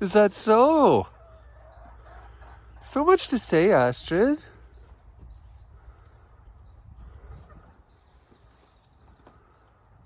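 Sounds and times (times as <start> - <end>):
small bird chirping: 1.6 - 2.9, 4.3 - 10.0.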